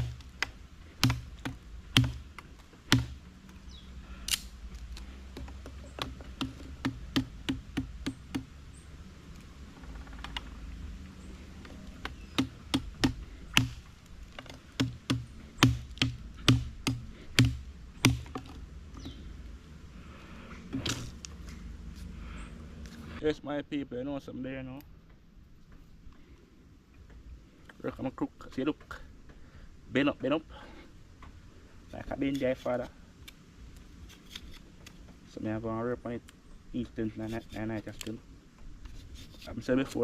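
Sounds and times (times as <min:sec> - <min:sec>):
blade chopping wood: 0:00.0 - 0:03.2, 0:05.3 - 0:08.5, 0:12.0 - 0:18.6.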